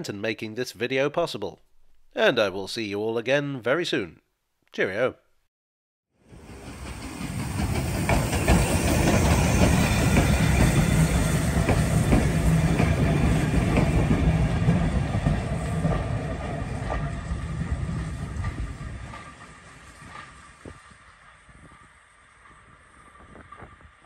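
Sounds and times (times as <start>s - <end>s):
train wheels clattering over rail joints: 6.5s - 21.0s.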